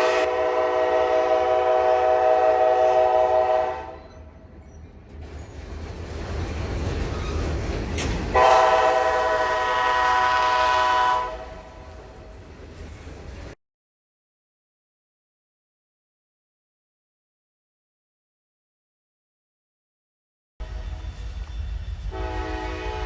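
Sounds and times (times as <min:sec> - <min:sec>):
locomotive air horn chords: 0:00.0 - 0:04.2, 0:08.3 - 0:12.0, 0:22.0 - 0:23.0
passing train rumble and wheels: 0:00.0 - 0:13.6, 0:20.6 - 0:23.0.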